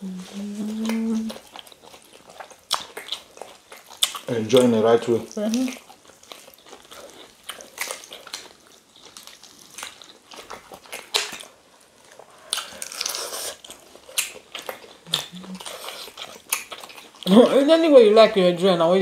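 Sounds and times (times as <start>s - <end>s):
people chewing and biting: 0.0s - 17.7s
wet clicks and smears: 14.1s - 15.3s.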